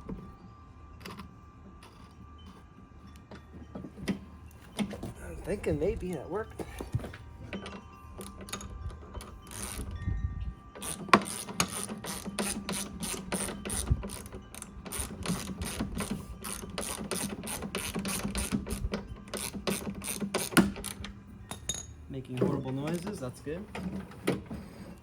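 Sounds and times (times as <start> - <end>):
mower wheel ratchet clicking: 6.6 - 10.0, 10.7 - 21.9.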